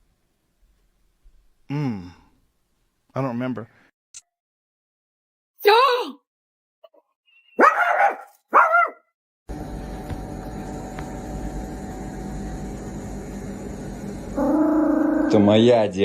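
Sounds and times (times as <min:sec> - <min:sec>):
dog barking: 0:07.6 - 0:09.1.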